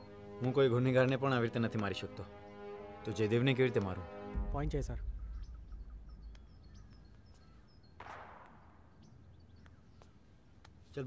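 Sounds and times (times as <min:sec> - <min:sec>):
low film score drone: 0:00.0 - 0:10.0
faint bird chirps: 0:04.4 - 0:11.0.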